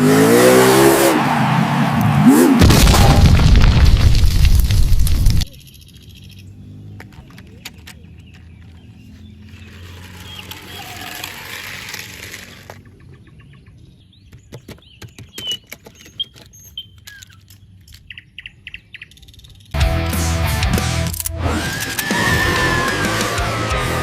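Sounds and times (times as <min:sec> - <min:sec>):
toys clicking and tapping: 0:05.4 - 0:08.9, 0:09.5 - 0:12.9, 0:14.3 - 0:19.8.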